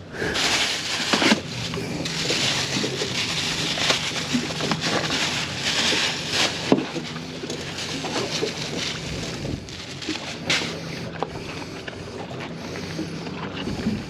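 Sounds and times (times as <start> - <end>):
low steady hum: 0.0 - 14.0
water noise: 0.0 - 14.0
wind: 0.0 - 14.0.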